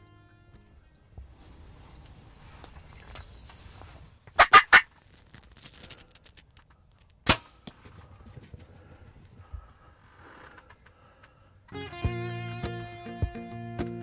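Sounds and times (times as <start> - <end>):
wild turkey calling: 4.4 - 4.9
sharp snap: 7.2 - 7.8.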